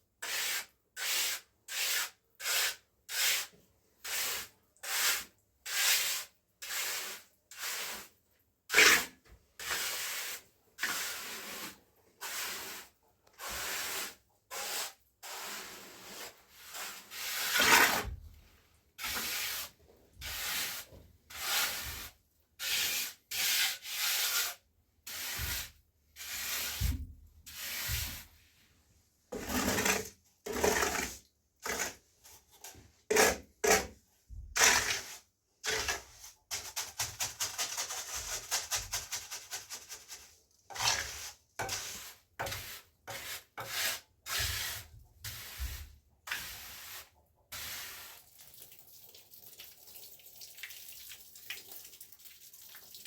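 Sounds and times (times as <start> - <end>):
hand tool scraping rough surface: 8.7 - 12.8, 13.4 - 18.2, 19.0 - 24.5, 29.3 - 34.0, 34.6 - 48.0.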